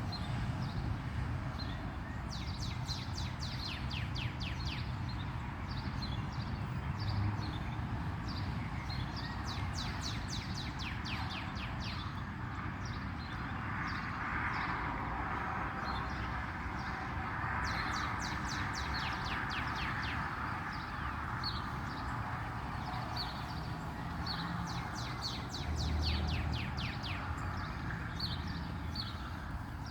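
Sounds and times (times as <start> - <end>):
distant road traffic hum: 0.0 - 29.9
songbirds chirping: 15.8 - 29.9.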